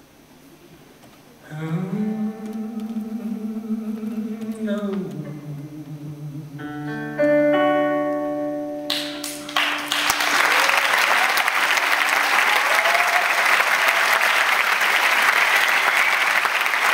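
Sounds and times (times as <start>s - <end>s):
audience applause: 8.9s - 16.9s.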